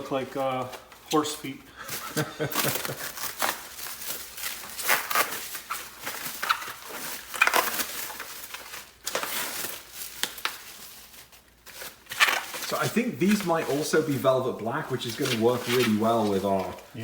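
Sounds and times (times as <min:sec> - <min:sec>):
packaging crinkling and rustling: 0:00.1 - 0:17.0.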